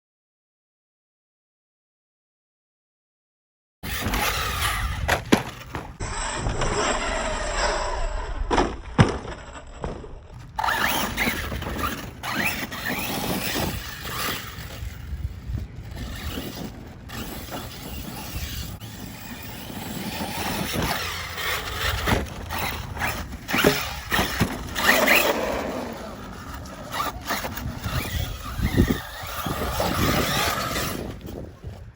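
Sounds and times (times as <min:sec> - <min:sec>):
electric motors whining: 0:03.8 - 0:31.9
tyres scraping over loose ground: 0:03.8 - 0:31.9
sharp knocks from landings: 0:03.9 - 0:07.2, 0:08.4 - 0:14.8, 0:20.3 - 0:25.6.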